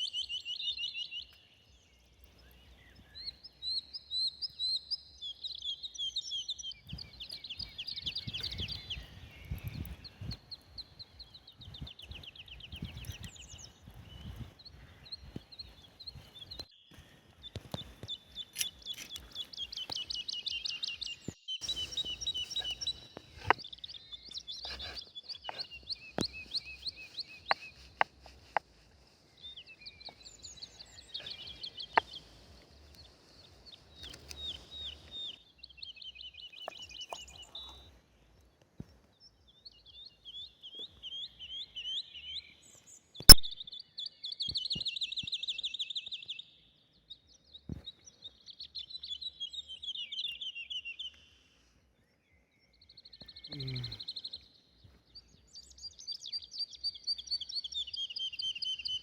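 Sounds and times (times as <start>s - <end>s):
songbirds singing: 0.0s - 59.0s
sharp clicks: 17.5s - 20.0s.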